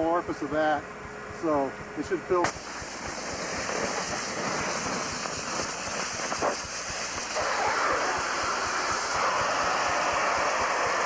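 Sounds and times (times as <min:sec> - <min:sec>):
gas venting hiss: 0:02.3 - 0:11.0.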